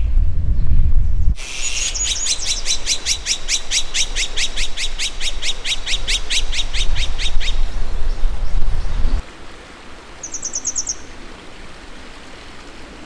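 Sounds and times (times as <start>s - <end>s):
bird calling sharp falling notes: 1.4s - 7.6s.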